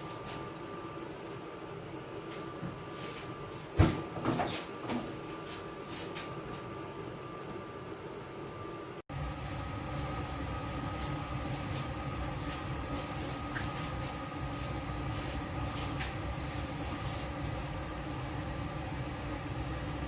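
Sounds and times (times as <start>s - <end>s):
faint whine: 8.3s - 20.0s
low rumbling hum: 9.1s - 20.0s.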